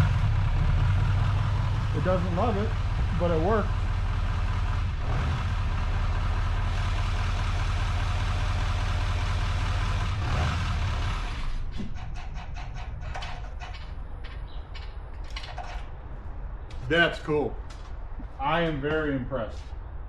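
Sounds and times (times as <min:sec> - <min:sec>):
diesel engine idling: 0:00.0 - 0:12.7.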